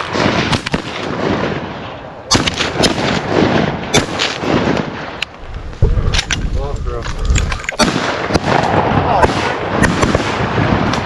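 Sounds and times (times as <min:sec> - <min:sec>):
shotgun shots: 0:00.0 - 0:01.7, 0:02.3 - 0:05.0, 0:07.8 - 0:11.0.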